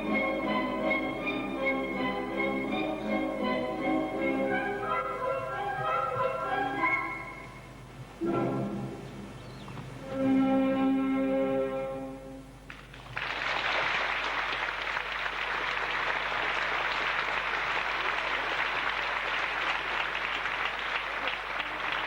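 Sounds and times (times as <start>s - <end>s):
orchestra sustained chord: 8.2s - 9.2s
audience applause: 12.7s - 22.0s.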